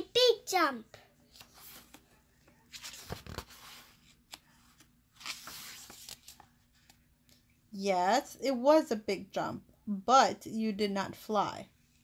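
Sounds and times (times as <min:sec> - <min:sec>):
book pages rustling: 0:01.3 - 0:07.0.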